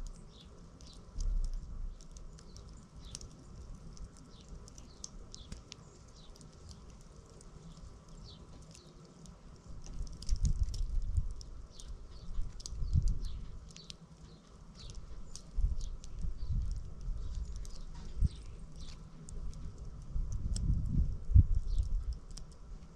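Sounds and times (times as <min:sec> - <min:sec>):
small birds chirping: 0:00.0 - 0:22.9
low rumbling bumps: 0:14.8 - 0:22.3.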